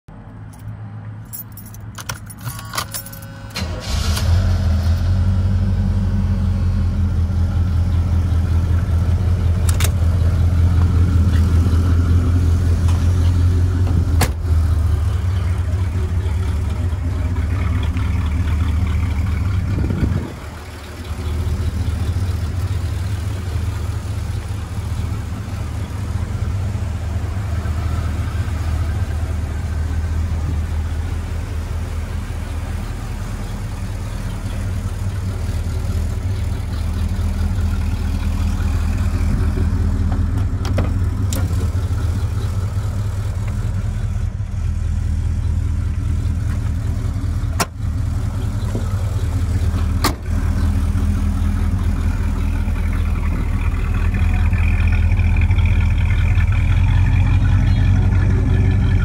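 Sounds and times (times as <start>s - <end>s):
car engine starting and idling: 0.2s - 59.0s
keys jingling: 0.5s - 3.4s.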